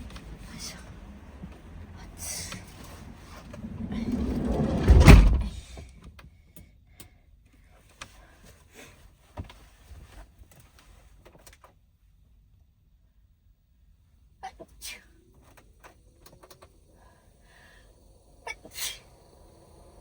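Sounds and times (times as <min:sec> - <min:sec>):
van sliding door slamming: 0:02.4 - 0:05.8.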